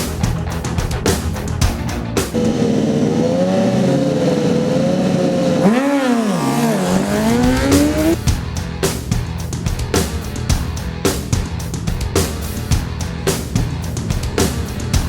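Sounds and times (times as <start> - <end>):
racing motorcycle engine revving: 1.8 - 8.4.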